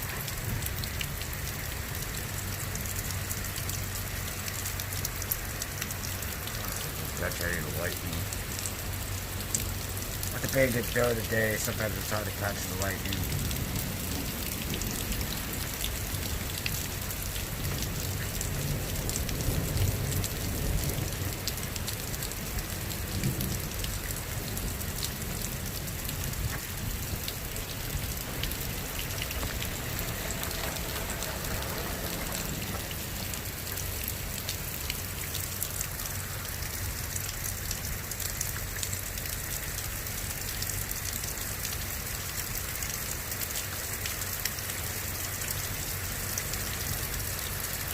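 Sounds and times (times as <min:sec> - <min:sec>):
rain spattering: 0:00.0 - 0:47.9
low rumble: 0:24.2 - 0:34.3.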